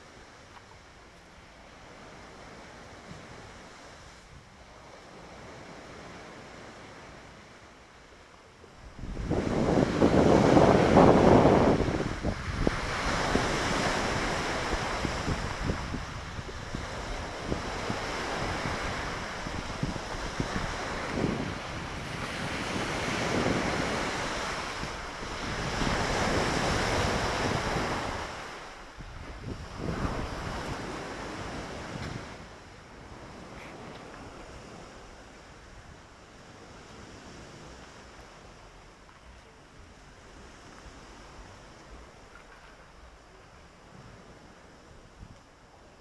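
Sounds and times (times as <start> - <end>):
waves breaking on shore: 0.0 - 46.0
wind buffeting microphone: 8.7 - 38.5.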